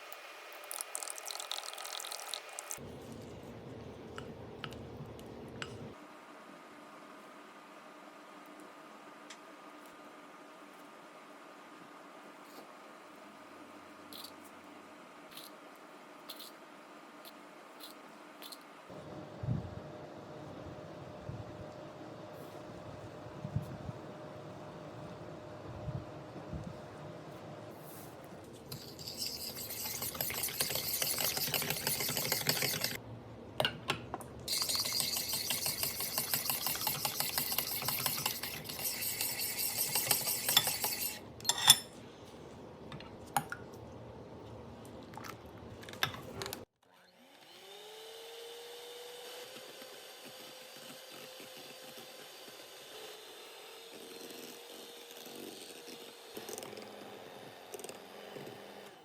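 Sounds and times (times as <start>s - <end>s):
quiet steady hum: 2.3s - 46.6s.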